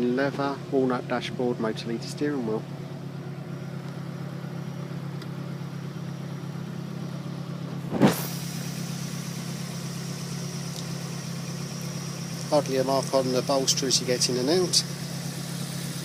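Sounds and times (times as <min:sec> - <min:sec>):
car engine idling: 0:00.0 - 0:16.0
sharp thump: 0:07.8 - 0:08.6.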